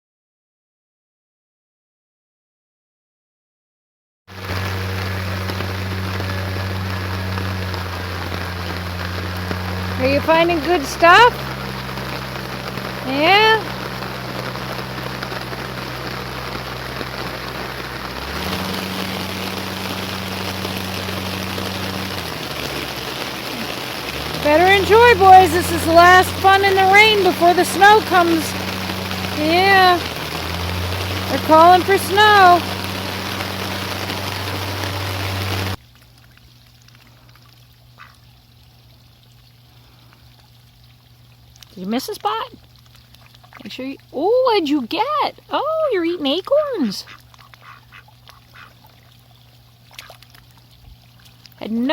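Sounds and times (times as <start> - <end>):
loud steady hiss: 4.3 - 35.8
low hum: 4.3 - 51.9
rain pattering on ground: 4.3 - 51.9
duck quack: 47.0 - 48.8.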